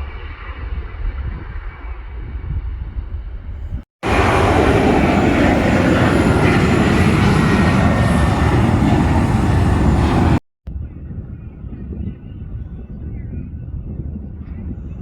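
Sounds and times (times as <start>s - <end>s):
airliner engines running: 4.0s - 10.4s.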